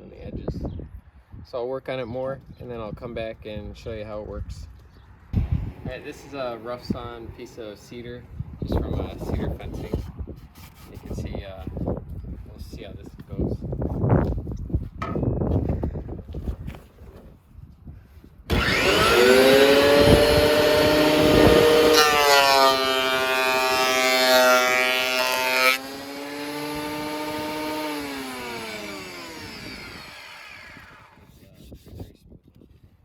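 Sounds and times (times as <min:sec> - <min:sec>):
thickness planer whining: 0:05.4 - 0:07.7, 0:18.5 - 0:31.3.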